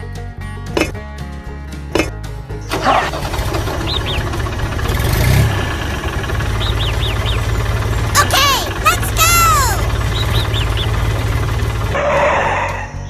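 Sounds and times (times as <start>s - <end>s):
tractor engine rumbling: 2.6s - 13.0s.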